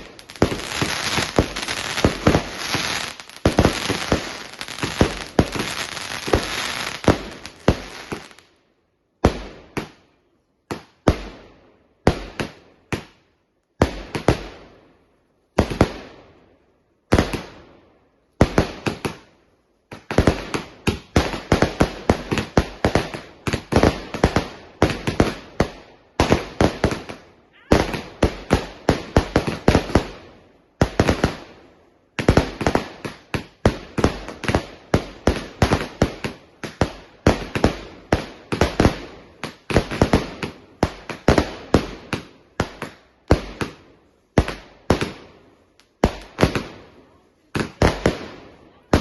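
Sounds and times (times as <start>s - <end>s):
fireworks crackling bangs: 0.0s - 8.4s, 19.9s - 31.4s, 32.1s - 46.9s.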